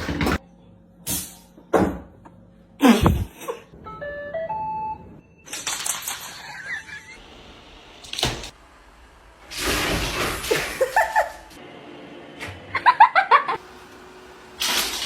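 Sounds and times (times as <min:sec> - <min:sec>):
person laughing: 0:02.8 - 0:03.7, 0:06.4 - 0:07.2, 0:10.5 - 0:11.5, 0:12.7 - 0:13.6.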